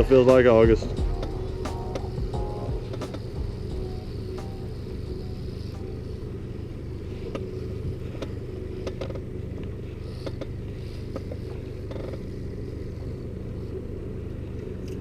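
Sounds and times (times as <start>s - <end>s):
boat motor droning: 0.0s - 15.0s
sharp clicks: 1.2s - 3.4s.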